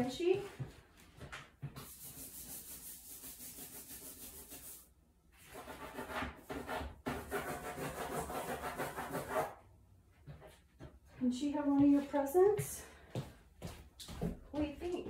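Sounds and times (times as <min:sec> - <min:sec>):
back-and-forth rubbing: 0:01.7 - 0:09.5.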